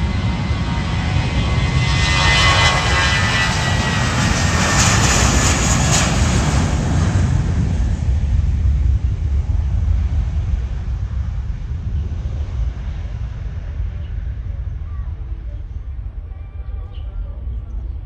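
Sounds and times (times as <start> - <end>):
airliner flying low past: 0.0 - 18.0
steady low rumble: 0.0 - 18.0.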